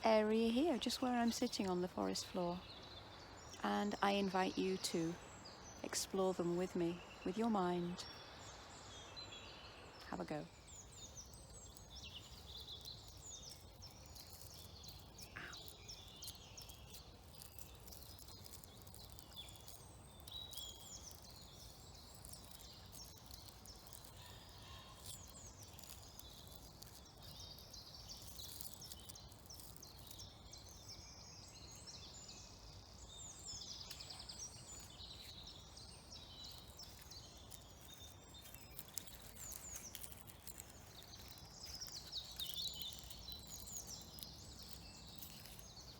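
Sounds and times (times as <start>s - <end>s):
birds chirping and warbling: 0.0s - 45.9s
low steady background rumble: 0.0s - 45.9s.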